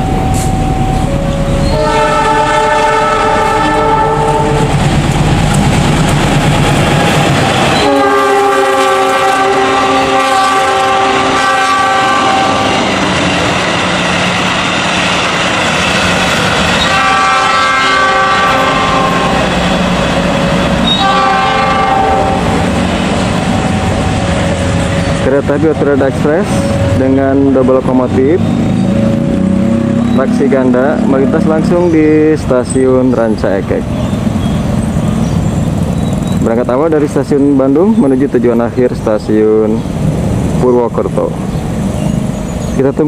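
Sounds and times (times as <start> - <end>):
diesel locomotive engines rumbling: 0.0 - 43.0
train horn blasts: 1.5 - 4.8, 7.8 - 13.0, 16.8 - 19.8, 20.8 - 22.8
carriages clattering over rail joints: 22.7 - 43.0.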